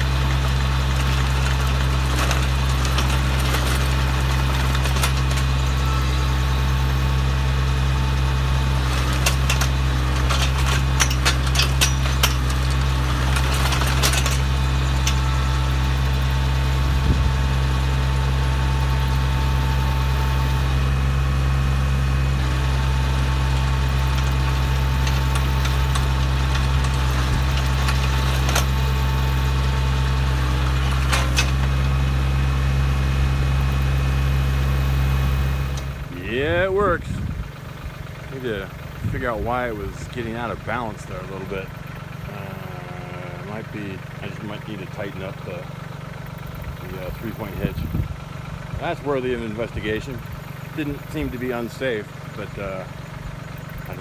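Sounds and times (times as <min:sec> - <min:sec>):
auger boring into ground: 0:00.0 - 0:54.0
tractor engine running under load: 0:00.0 - 0:54.0
clicks and clatter: 0:00.2 - 0:06.0, 0:08.8 - 0:15.4, 0:24.0 - 0:29.1, 0:30.5 - 0:32.0.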